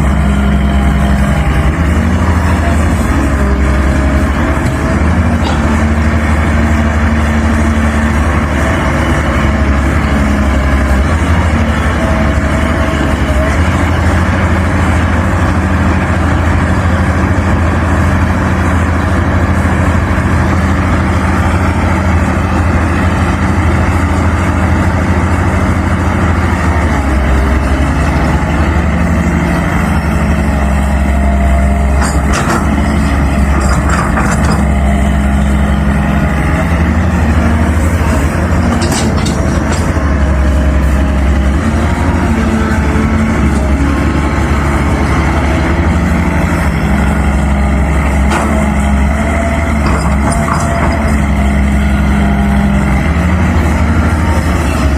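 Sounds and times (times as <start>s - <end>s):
excavator diesel engine running: 0.0s - 54.9s
short metallic clanks: 38.6s - 40.0s.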